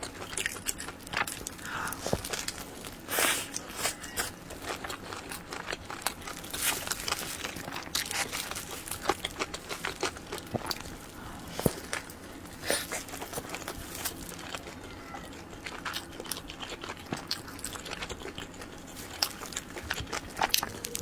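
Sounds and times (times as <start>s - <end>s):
chewing with wet mouth clicks: 0.0s - 21.0s.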